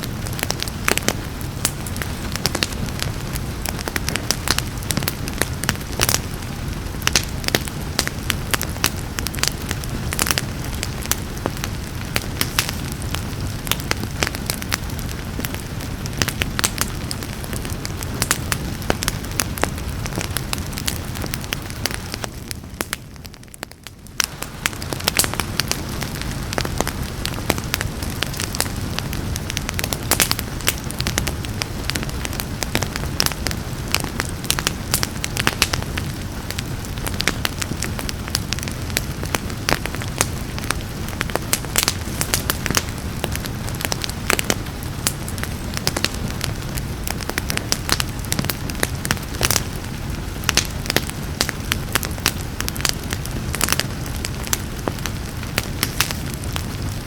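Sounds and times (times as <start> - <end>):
soft hiss of rain: 0.0 - 57.0
wood fire crackling and popping: 0.0 - 57.0.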